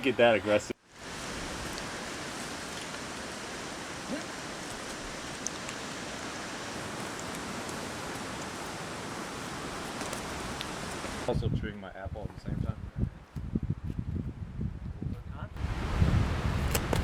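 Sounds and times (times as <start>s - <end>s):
outdoor background hiss: 0.0s - 14.0s, 15.1s - 17.0s.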